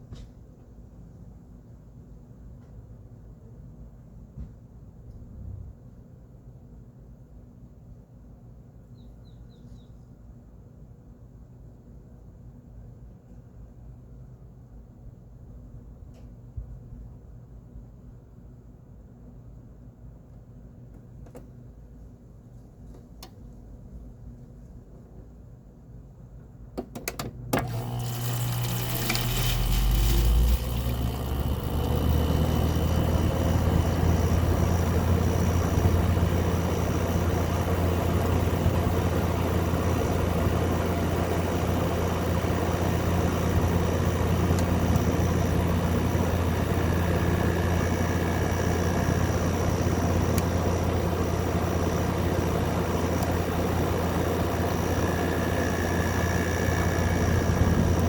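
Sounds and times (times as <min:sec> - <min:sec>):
air conditioner clicks: 0:22.9 - 0:23.5, 0:26.8 - 0:58.0
air conditioner humming: 0:27.0 - 0:58.0.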